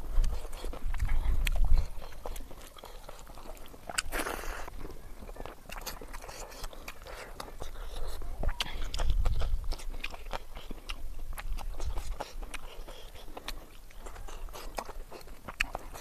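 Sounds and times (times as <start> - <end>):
wet chewing and lip-smacks: 0.0 - 16.0.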